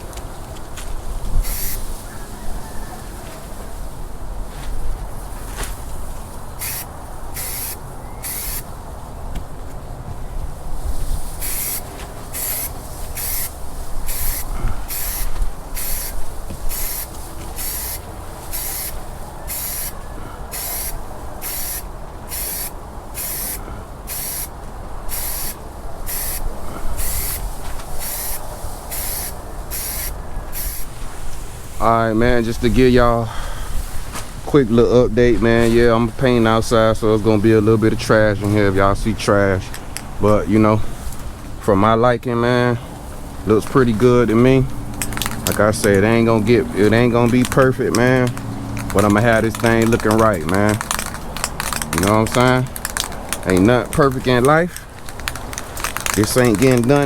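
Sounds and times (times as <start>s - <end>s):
spray hissing bursts: 1.4s - 1.9s, 6.4s - 8.8s, 11.2s - 31.0s.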